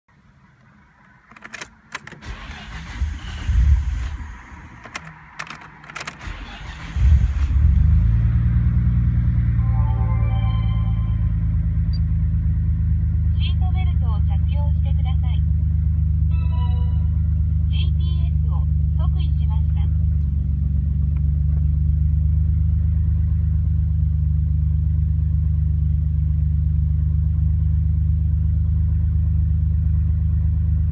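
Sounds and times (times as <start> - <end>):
car engine low rumble: 0.1 - 30.9
ignition clicks: 0.6 - 7.9.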